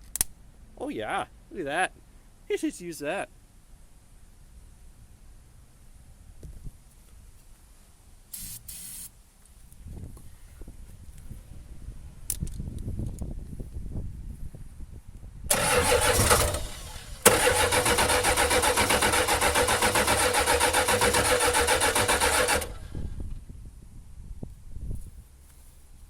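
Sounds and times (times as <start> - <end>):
diesel engine starter cranking: 15.5 - 23.2.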